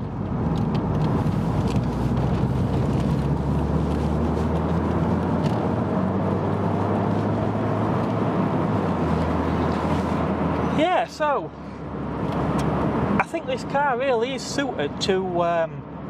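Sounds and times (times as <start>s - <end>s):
car engine pulling: 0.0s - 14.6s
road and wind noise: 0.0s - 16.0s.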